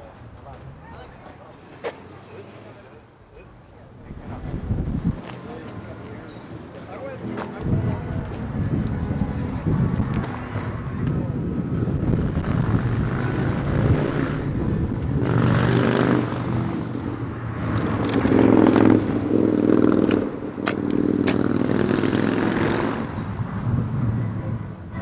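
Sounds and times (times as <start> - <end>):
car engine revving: 12.0 - 24.0.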